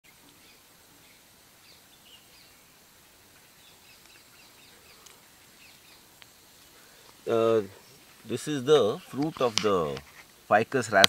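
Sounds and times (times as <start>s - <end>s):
faint birds chirping: 0.0s - 11.0s
low even hiss: 0.0s - 11.0s.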